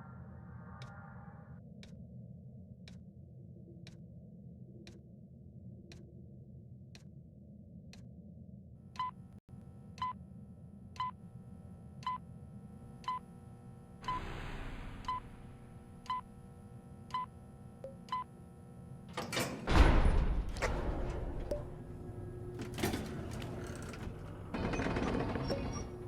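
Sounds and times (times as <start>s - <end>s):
steady ticking clicks: 1.6s - 8.3s.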